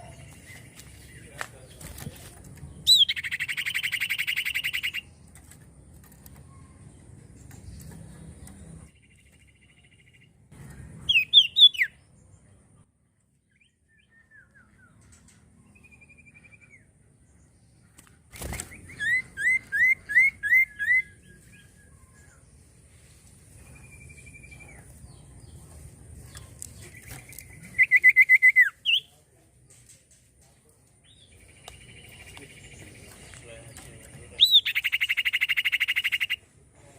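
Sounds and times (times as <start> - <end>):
bird quick repeated chirps: 2.8 - 5.2, 10.9 - 12.0, 34.4 - 36.4.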